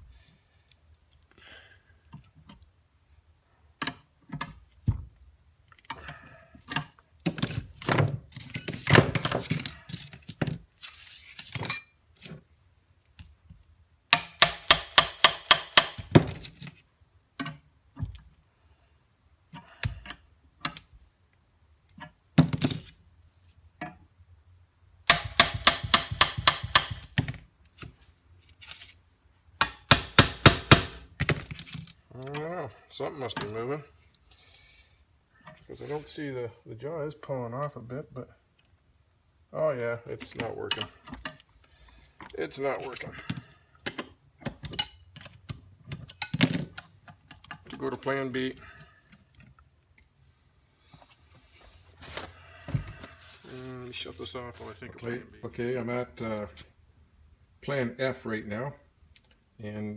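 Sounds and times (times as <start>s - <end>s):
metal taps and clinks: 22.5s - 23.2s, 25.1s - 27.2s, 43.9s - 47.5s.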